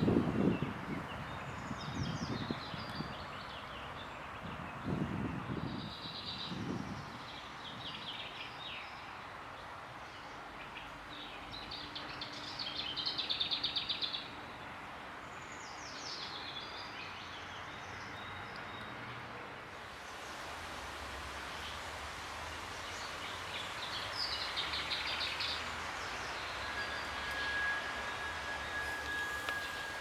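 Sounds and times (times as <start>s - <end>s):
songbird singing: 0.0s - 20.4s, 22.6s - 30.0s
outdoor background hum: 19.7s - 30.0s.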